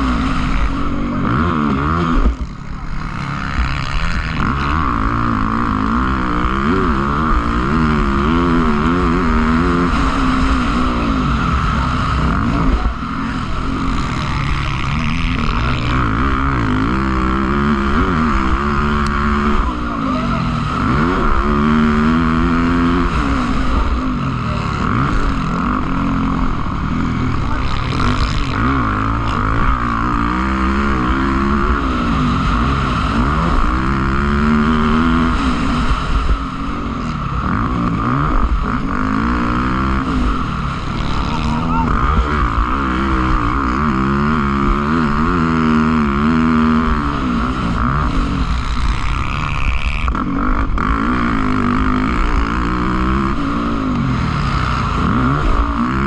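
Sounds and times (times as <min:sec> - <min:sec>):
motocross bike engines revving: 0:00.0 - 0:56.0.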